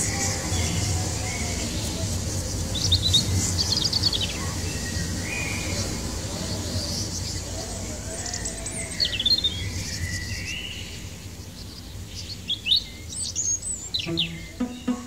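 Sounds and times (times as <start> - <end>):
birds chirping: 0.0 - 15.0
low background noise: 0.0 - 15.0
music: 14.0 - 15.0.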